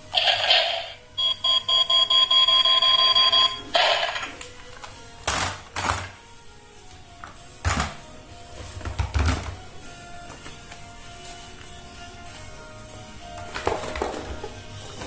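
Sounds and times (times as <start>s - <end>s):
rapid pulsing electronic beep: 0.3s - 4.1s.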